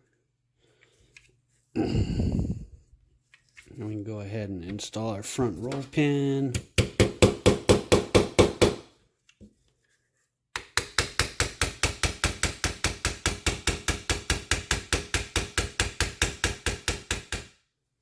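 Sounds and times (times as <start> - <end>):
hammer tapping metal pin: 10.6 - 17.5.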